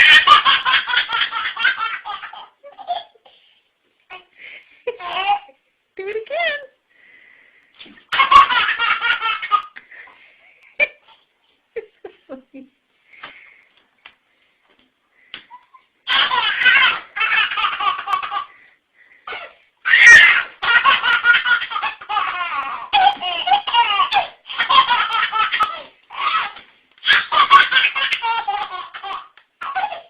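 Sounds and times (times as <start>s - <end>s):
baby laughing: 0.0s - 3.3s, 4.9s - 5.6s, 8.0s - 9.8s, 15.5s - 18.6s, 19.3s - 30.0s.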